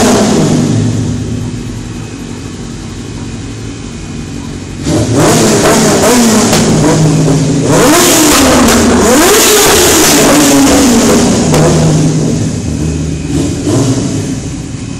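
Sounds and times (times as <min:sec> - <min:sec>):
motorcycle engine revving: 0:00.0 - 0:01.8, 0:04.6 - 0:14.8.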